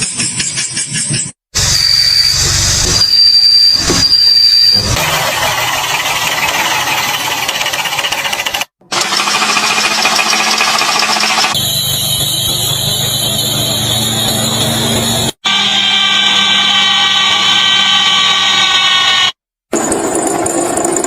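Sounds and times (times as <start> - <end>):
harsh mechanical noises: 0.0 - 21.0
high-pitched vehicle squeal: 1.6 - 7.6, 11.5 - 19.4.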